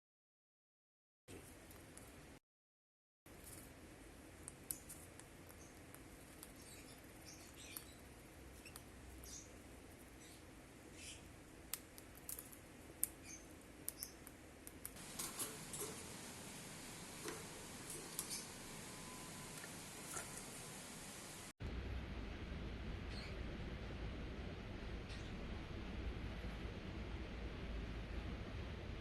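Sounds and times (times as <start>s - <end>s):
small bird peeping: 4.4s - 12.4s, 13.0s - 14.3s, 15.0s - 21.4s.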